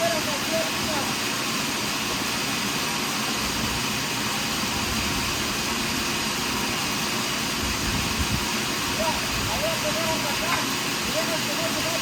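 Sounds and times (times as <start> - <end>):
sawmill running: 0.0 - 12.0.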